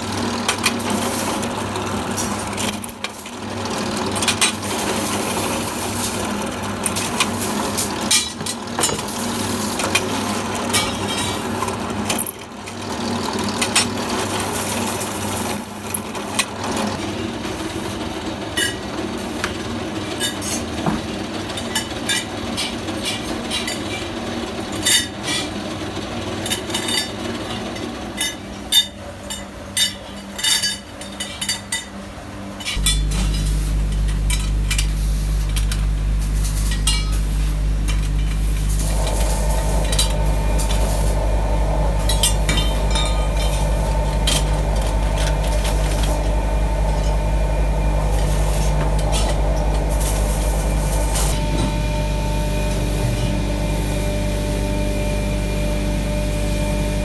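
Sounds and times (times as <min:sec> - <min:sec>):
motor running low hum: 0:32.8 - 0:57.0
steady machine hum: 0:32.8 - 0:57.0.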